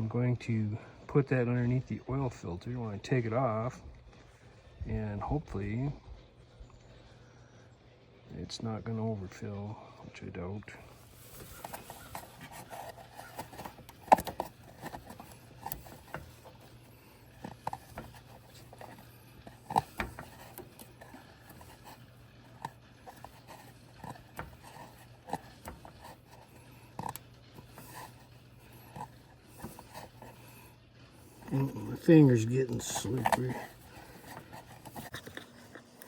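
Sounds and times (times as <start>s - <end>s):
tools clicking and knocking: 11.3s - 30.5s.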